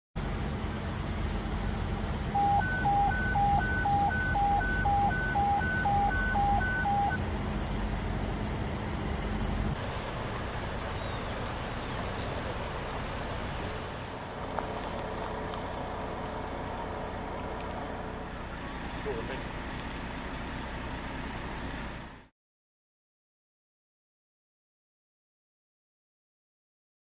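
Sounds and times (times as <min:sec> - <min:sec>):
low rumbling noise: 0:00.2 - 0:22.3
two-tone electronic warning beeps: 0:02.3 - 0:07.2.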